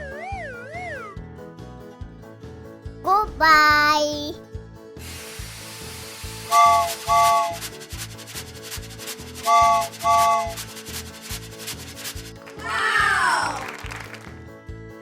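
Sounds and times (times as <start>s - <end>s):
cartoon music with repeating beat: 3.1s - 4.4s.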